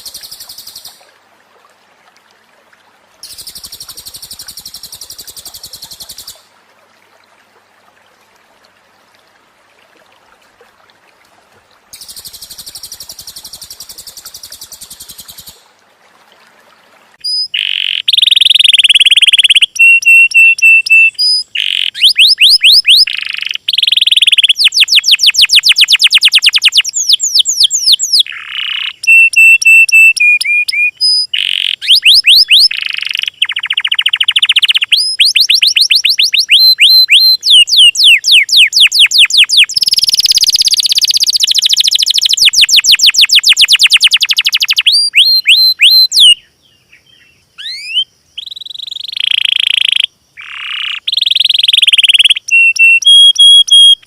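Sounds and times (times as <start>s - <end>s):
songbirds singing trills: 17.2s - 54.0s.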